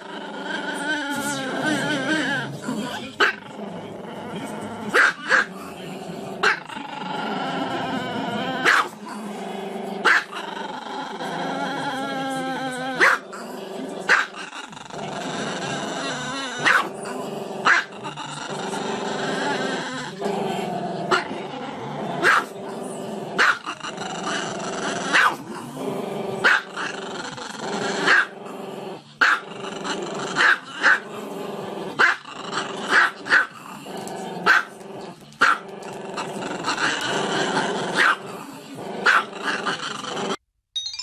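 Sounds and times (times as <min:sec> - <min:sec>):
dog barking: 0:05.0 - 0:05.5, 0:08.6 - 0:08.9, 0:10.0 - 0:10.4, 0:13.0 - 0:13.2, 0:14.1 - 0:14.4, 0:16.6 - 0:16.9, 0:22.2 - 0:22.5, 0:23.4 - 0:23.6, 0:25.1 - 0:25.4, 0:26.4 - 0:26.7, 0:28.1 - 0:28.3, 0:29.2 - 0:29.5, 0:30.4 - 0:31.0, 0:32.9 - 0:33.5, 0:34.4 - 0:34.7, 0:38.0 - 0:38.2, 0:39.0 - 0:39.3.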